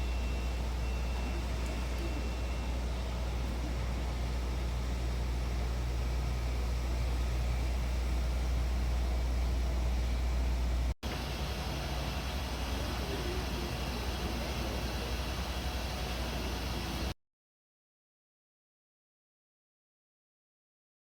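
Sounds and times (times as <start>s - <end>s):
vehicle interior rumble and hiss: 10.8s - 17.2s.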